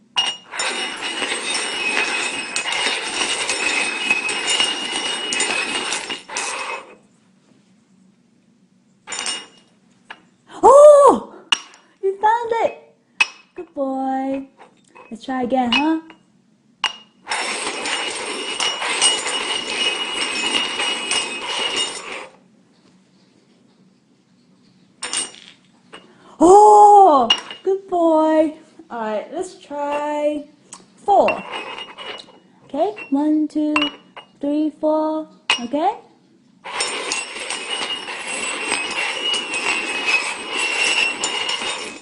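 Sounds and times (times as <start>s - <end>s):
glasses sliding on hard surface: 0.2s - 7.1s, 9.1s - 10.2s, 17.2s - 22.4s, 30.8s - 33.2s, 36.6s - 42.0s.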